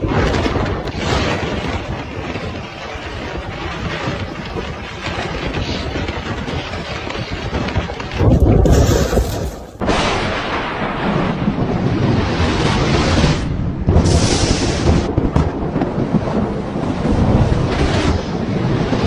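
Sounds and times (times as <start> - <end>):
thunder rumbling: 0.0 - 19.0
thunder boom: 8.2 - 12.7.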